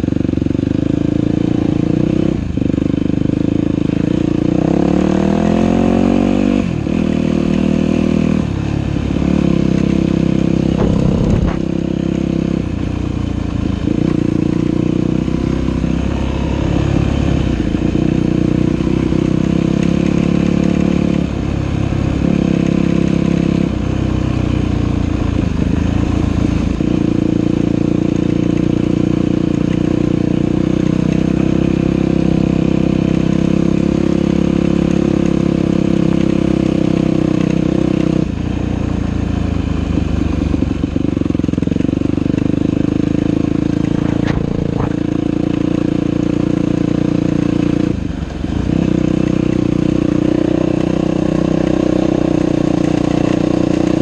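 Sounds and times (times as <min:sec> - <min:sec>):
dirt bike engine revving: 0:04.0 - 0:12.8, 0:42.5 - 0:47.9.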